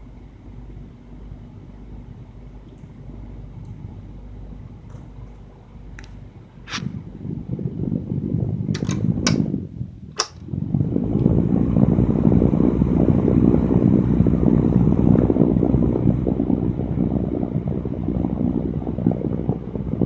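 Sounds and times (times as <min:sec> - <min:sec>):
electric fan blowing air: 0:00.0 - 0:20.0
sharp clicks: 0:08.8 - 0:09.5, 0:10.2 - 0:10.4.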